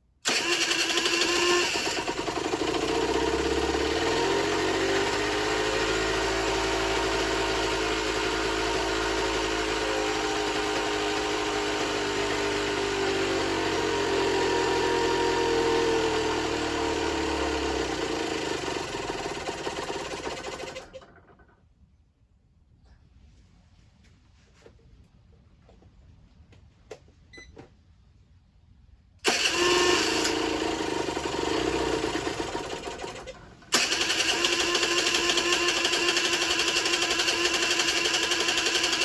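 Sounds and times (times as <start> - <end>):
two-stroke moped engine idling: 0.3 - 21.4, 29.3 - 39.0.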